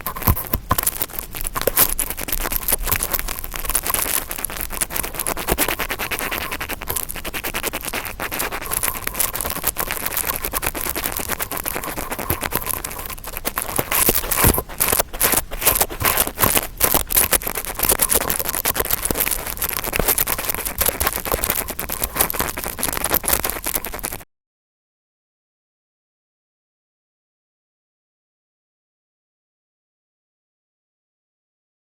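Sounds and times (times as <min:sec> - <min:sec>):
interdental brush scratching: 0:00.0 - 0:24.2.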